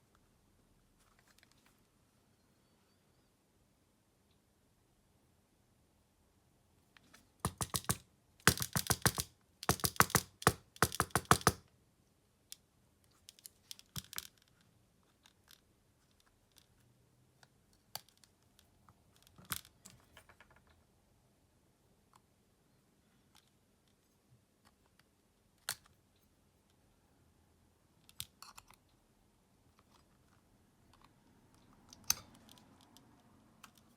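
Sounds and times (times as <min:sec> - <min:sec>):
rapid clicking of small tools: 0:07.4 - 0:11.7.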